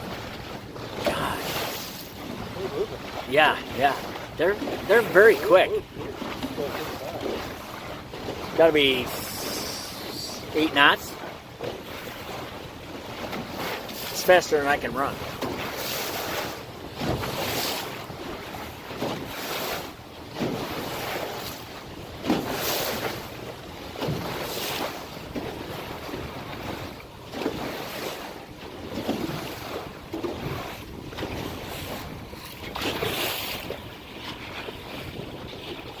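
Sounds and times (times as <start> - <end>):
sea water splashing against hull: 0.0 - 36.0
wind buffeting microphone: 28.7 - 36.0.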